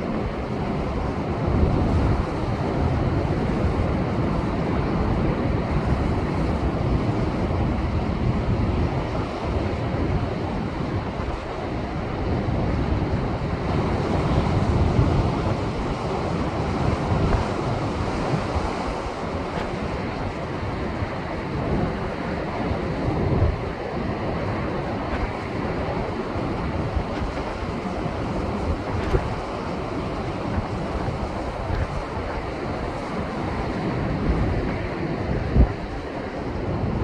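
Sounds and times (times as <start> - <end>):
wind buffeting microphone: 0.0 - 37.0
waves breaking over rocks: 13.7 - 36.7.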